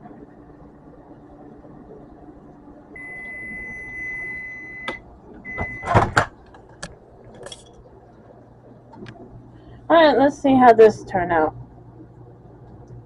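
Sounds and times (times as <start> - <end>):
microwave humming: 0.0 - 13.0
microwave beeps: 3.0 - 6.2
microwave door clacks: 5.5 - 6.4.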